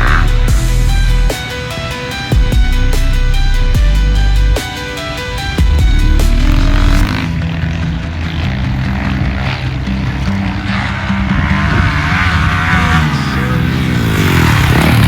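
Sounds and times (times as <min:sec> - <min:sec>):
dirt bike engine revving: 0:00.0 - 0:02.2, 0:04.5 - 0:15.0
background music: 0:00.0 - 0:15.0.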